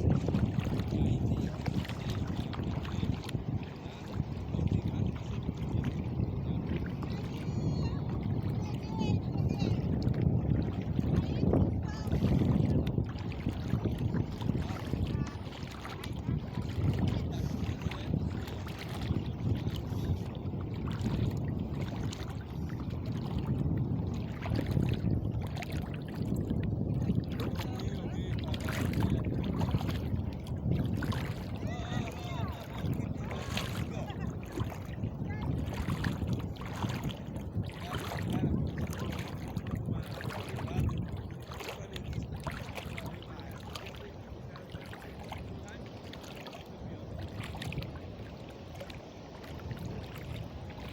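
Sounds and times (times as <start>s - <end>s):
small water splashes: 0.0s - 50.9s
water sloshing and lapping: 0.0s - 50.9s
wind rumbling on microphone: 0.0s - 50.9s.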